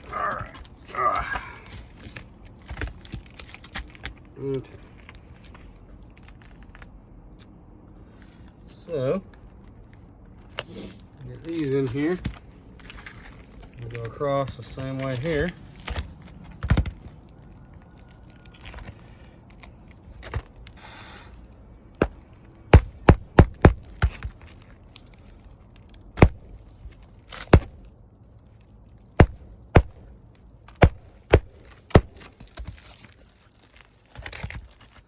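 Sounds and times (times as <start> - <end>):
shingles rustling: 0.0 - 7.3, 9.3 - 35.0
hammer striking roofing nails: 22.0 - 24.4, 27.5 - 27.8, 29.2 - 30.0, 30.8 - 32.4.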